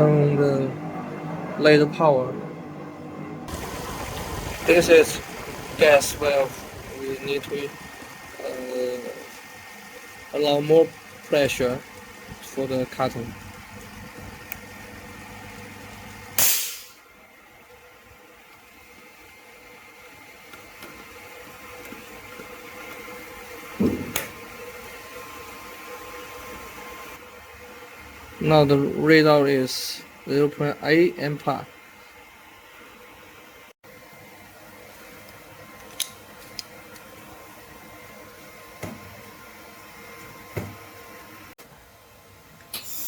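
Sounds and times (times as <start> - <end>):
laser welding machine humming: 2.4 - 17.0
thump: 23.8 - 24.3.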